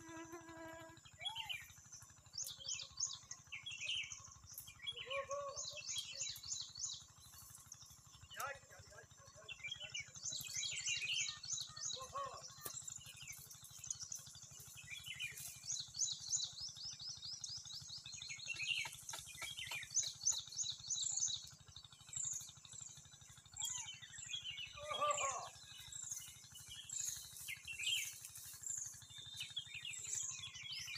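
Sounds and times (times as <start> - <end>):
small birds chirping: 0.0 - 30.9.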